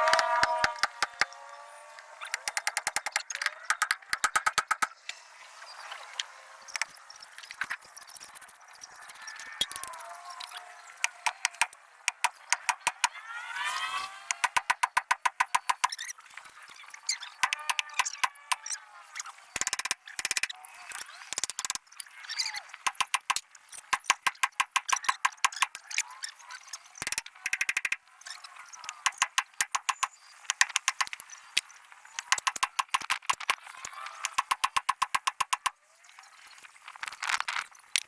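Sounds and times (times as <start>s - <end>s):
ratchet wrench clicking: 2.3s - 4.9s, 11.0s - 13.6s, 14.3s - 16.0s, 17.4s - 18.8s, 19.6s - 20.5s, 21.3s - 21.8s, 22.9s - 25.8s, 27.0s - 28.0s, 28.8s - 31.2s, 32.2s - 35.7s.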